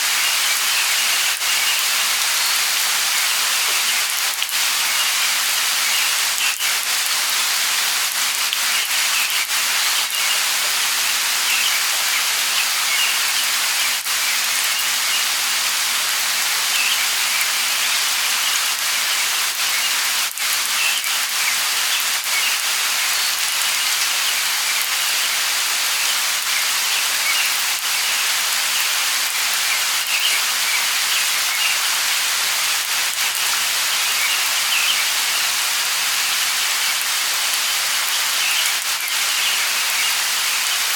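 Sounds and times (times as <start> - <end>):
light rain falling: 0.0 - 40.9
raindrop ticks: 1.3 - 4.7, 8.1 - 10.3.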